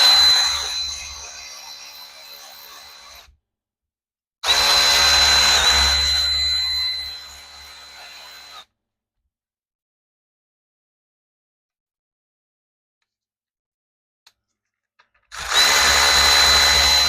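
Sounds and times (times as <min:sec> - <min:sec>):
power drill motor whine: 0:00.0 - 0:03.3, 0:04.4 - 0:08.6, 0:15.3 - 0:17.0.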